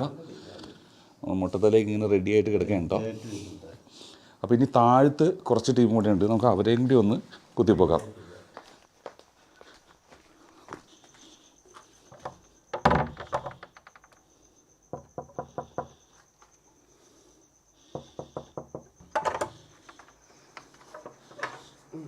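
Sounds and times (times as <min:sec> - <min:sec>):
knocking on a door: 0:12.2 - 0:13.6, 0:14.9 - 0:16.0, 0:17.9 - 0:19.5.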